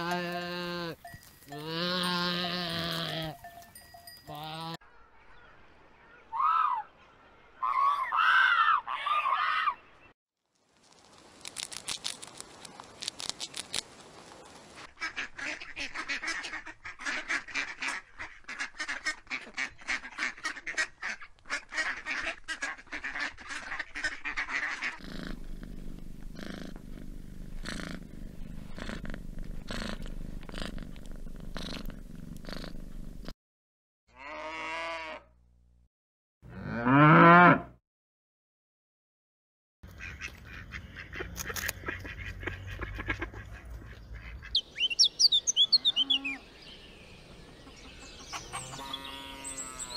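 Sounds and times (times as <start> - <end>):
cow mooing: 0.0 - 3.4, 34.1 - 35.2, 36.5 - 37.8, 48.6 - 49.9
ducks quacking: 14.8 - 25.0, 39.9 - 46.4, 47.6 - 49.9.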